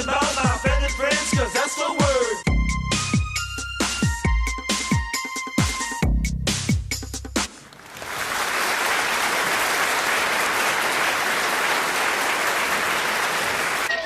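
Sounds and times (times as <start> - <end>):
audience applause: 7.6 - 14.0.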